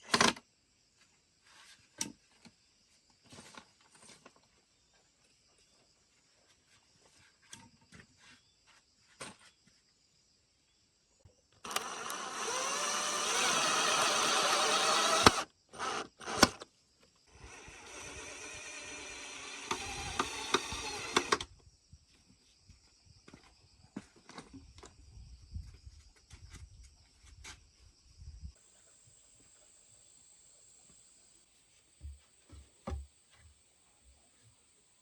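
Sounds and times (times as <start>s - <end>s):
electric drill running: 11.6s - 16.6s, 17.4s - 21.5s.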